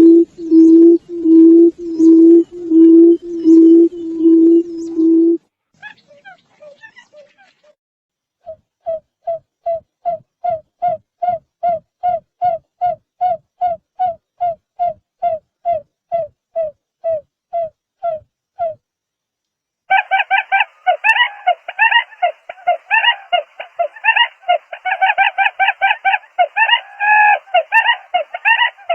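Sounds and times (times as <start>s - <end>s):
buttonquail low hoots: 0.0s - 7.3s, 19.9s - 28.9s
overlapping bird calls: 1.8s - 5.2s, 5.8s - 7.7s, 19.9s - 28.9s.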